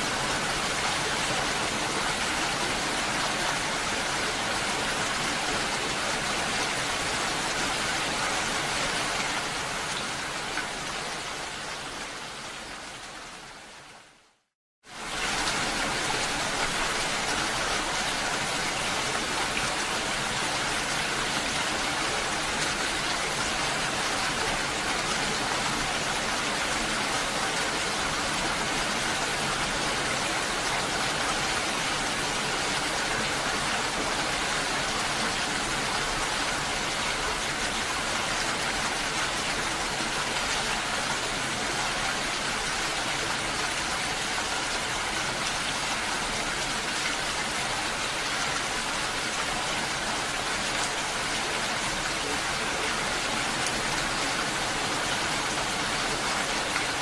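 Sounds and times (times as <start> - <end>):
heavy rain falling: 14.9 - 57.0.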